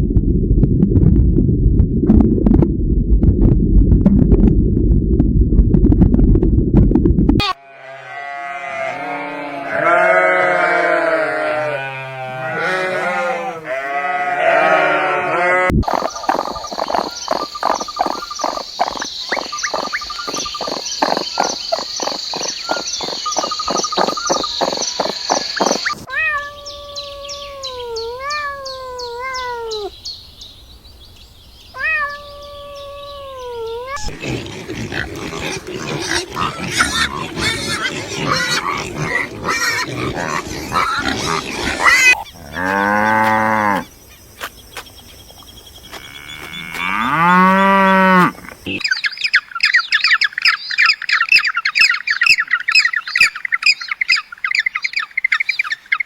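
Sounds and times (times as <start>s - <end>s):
drawn-out wavering animal calls: 7.4s - 26.0s, 32.2s - 43.9s
chorus of animal calls: 7.4s - 29.9s, 31.8s - 43.9s.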